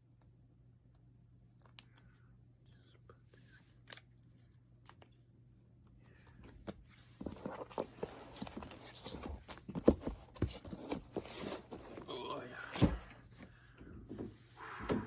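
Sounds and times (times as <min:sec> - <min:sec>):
cards and binder pages rustling: 0:06.2 - 0:13.4.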